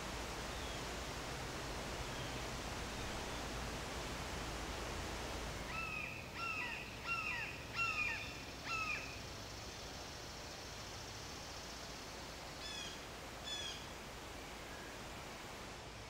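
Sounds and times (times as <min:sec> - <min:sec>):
background hiss: 0:00.0 - 0:16.0
bird calling: 0:05.7 - 0:09.1.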